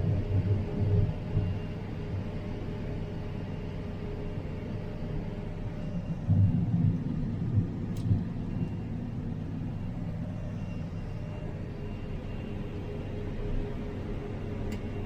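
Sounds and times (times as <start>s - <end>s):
engine rumble inside vehicle: 0.0s - 15.0s.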